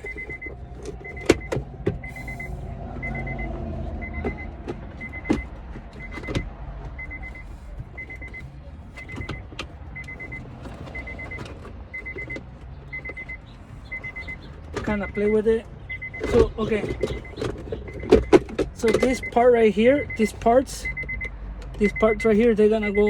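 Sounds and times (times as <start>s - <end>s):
plastic parts clicking and knocking: 0.0s - 2.2s, 4.1s - 7.1s, 9.0s - 19.3s.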